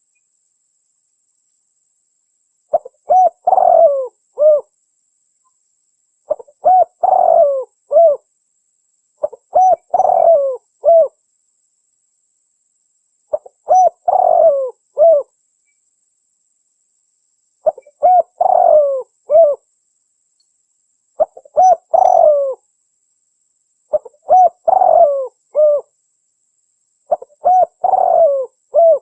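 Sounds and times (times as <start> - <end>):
dove cooing: 2.7 - 4.7, 6.3 - 8.2, 9.2 - 11.2, 13.3 - 15.3, 17.6 - 19.6, 21.2 - 22.6, 23.9 - 25.9, 27.1 - 29.0.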